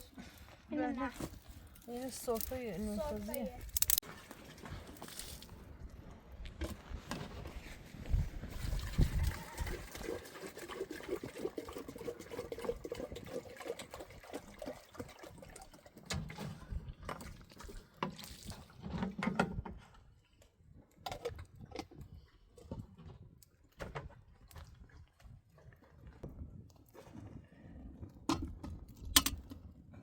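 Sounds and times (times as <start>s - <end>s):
liquid pouring and sloshing: 7.6s - 19.4s, 21.1s - 29.5s.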